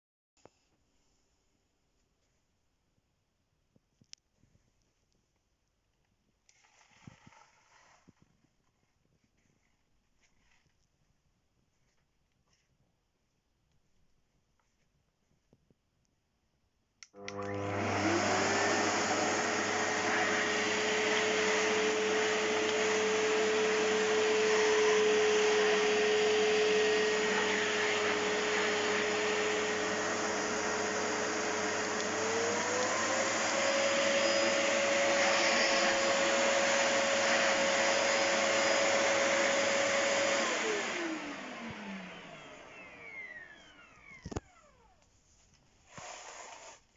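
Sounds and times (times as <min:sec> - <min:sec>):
vacuum cleaner motor whining: 0:17.1 - 0:45.0, 0:45.9 - 0:46.8.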